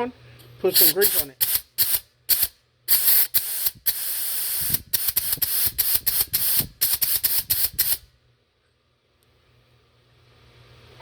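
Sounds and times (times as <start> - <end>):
aerosol spray can spraying: 0.8 - 8.0.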